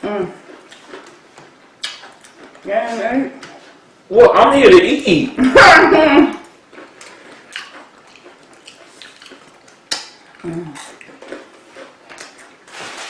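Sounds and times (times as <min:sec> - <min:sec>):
low voiced hum: 0:00.0 - 0:00.6, 0:10.4 - 0:11.0.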